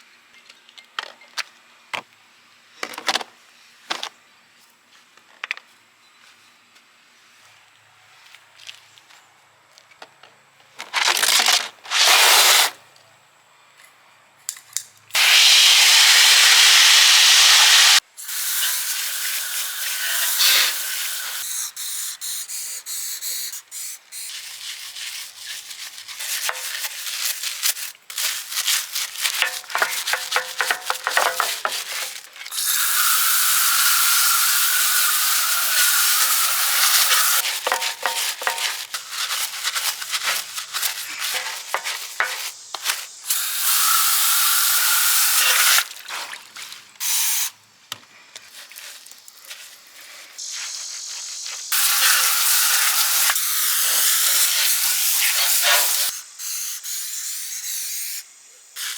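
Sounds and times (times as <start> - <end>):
spray hissing: 15.2 - 24.3, 29.4 - 45.8, 50.4 - 57.8
scrubbing and rubbing strokes: 24.2 - 32.5, 35.6 - 43.2.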